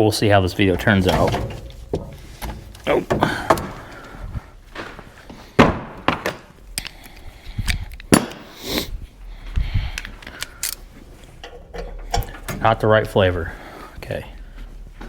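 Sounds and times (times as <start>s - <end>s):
metal hand tools clanking: 0.5s - 4.2s.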